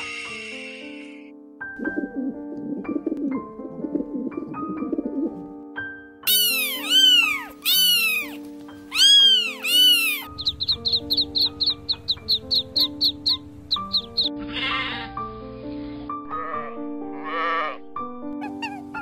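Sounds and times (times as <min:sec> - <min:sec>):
background music: 0:00.0 - 0:19.0
cat meowing: 0:06.3 - 0:10.3
hen clucking: 0:06.3 - 0:15.1
sheep bleating: 0:14.4 - 0:15.1.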